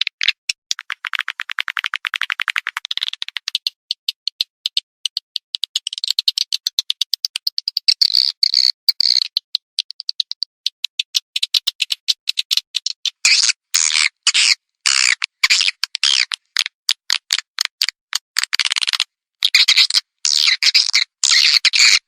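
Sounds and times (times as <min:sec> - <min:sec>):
swiftlet clicking chirps: 0:02.8 - 0:13.6.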